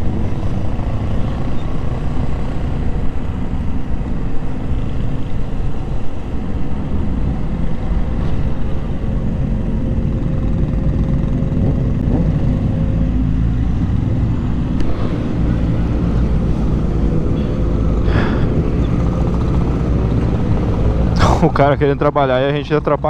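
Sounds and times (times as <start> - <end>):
wind and road noise: 0.0 - 23.0.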